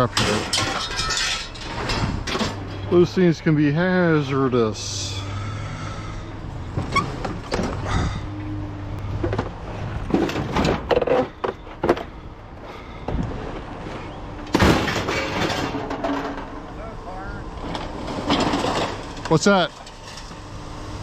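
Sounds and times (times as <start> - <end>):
objects knocking and clunking: 0.0 - 2.9, 9.1 - 12.2, 13.0 - 16.8
steady low hum: 0.0 - 21.0.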